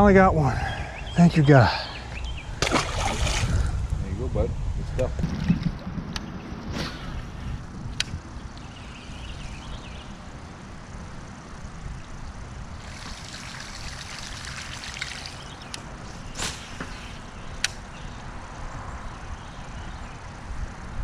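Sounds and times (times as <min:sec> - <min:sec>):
low steady rumble: 0:00.0 - 0:16.4
water trickling and splashing: 0:02.6 - 0:03.8, 0:12.8 - 0:16.4.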